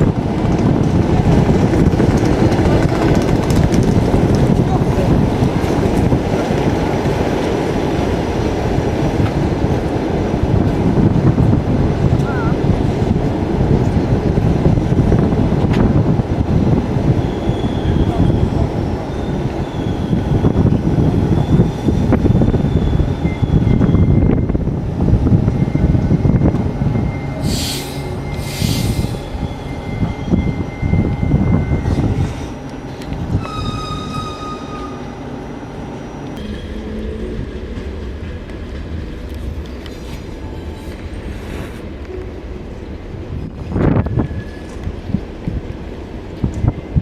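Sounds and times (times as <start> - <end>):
train wheels rumbling on rail: 0.0 - 47.0
wheels squealing: 33.3 - 35.2.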